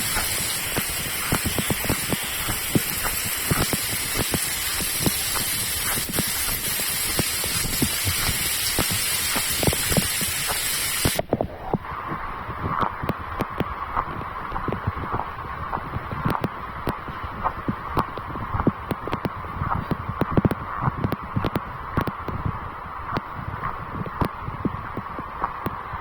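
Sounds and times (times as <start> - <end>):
rain falling: 0.0 - 11.2
scattered water drips: 0.0 - 11.2.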